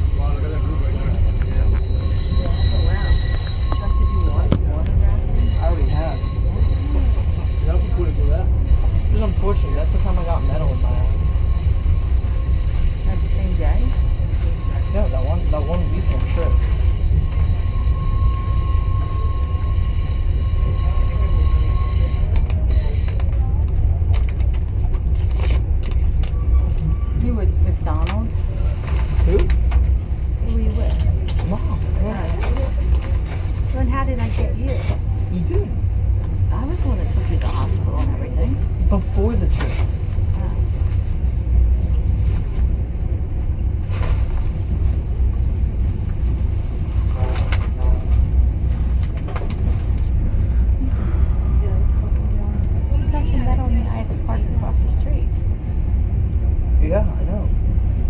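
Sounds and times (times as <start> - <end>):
thin steady whine: 0.0 - 23.3
moving train rumble: 0.0 - 58.0.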